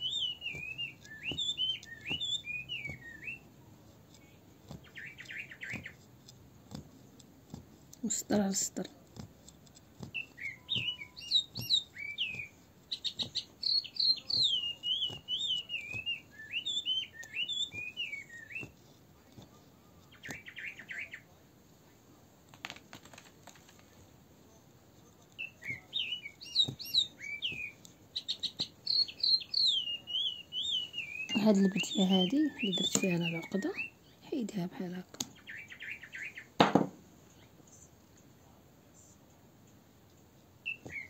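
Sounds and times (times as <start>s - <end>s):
songbird warbling: 0.0s - 3.4s, 4.8s - 6.0s, 10.2s - 18.7s, 20.1s - 21.3s, 25.4s - 34.0s, 35.4s - 36.6s, 40.6s - 41.0s
needle piercing fabric ticks: 0.0s - 20.5s.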